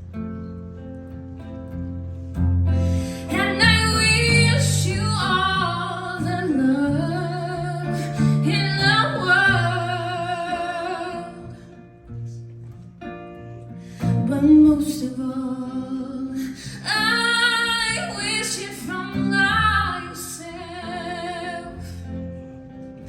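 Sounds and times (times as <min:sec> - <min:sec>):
acoustic guitar: 0:00.0 - 0:23.0
woman singing: 0:03.0 - 0:11.8, 0:14.0 - 0:22.4.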